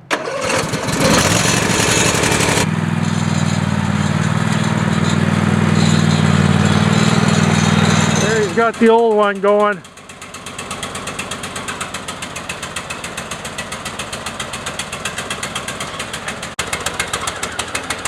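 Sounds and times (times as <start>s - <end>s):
lawn tractor engine running: 0.0s - 18.0s.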